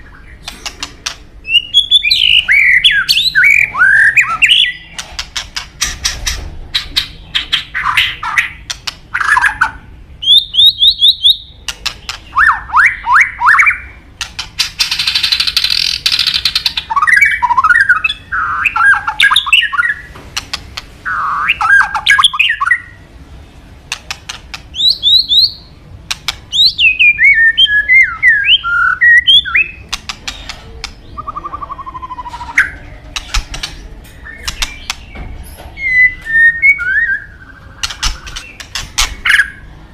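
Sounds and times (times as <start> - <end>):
bird whistled song: 0.0 - 5.0, 6.7 - 14.0, 14.6 - 20.1, 21.0 - 23.0, 24.7 - 25.7, 26.5 - 39.8
bird raspy chatter: 0.0 - 23.1, 23.8 - 39.9
bird clicking rattles: 23.9 - 24.7, 29.9 - 31.0.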